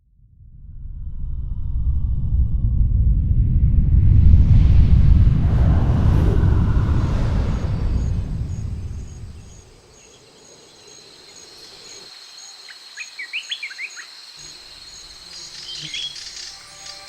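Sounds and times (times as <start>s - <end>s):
loud low rumbling: 0.3s - 9.8s
insects trilling and chirping: 6.4s - 17.0s
bird chirping: 7.7s - 17.0s.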